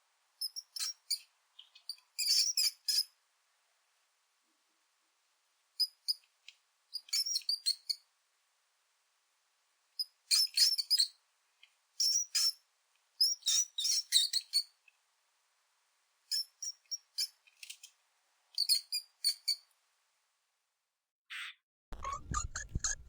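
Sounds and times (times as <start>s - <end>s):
mouse squeaking: 0.4s - 3.1s, 7.0s - 8.0s, 10.0s - 11.2s, 12.0s - 12.6s, 13.2s - 14.7s, 16.3s - 17.4s, 18.6s - 19.7s, 21.3s - 23.0s.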